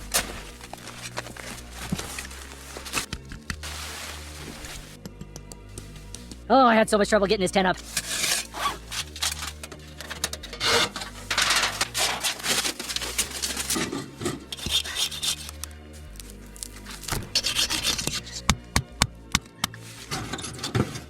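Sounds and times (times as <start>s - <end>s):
rubbing and scraping strokes: 0.0s - 5.0s, 7.8s - 18.7s
background music with low notes: 0.0s - 21.0s.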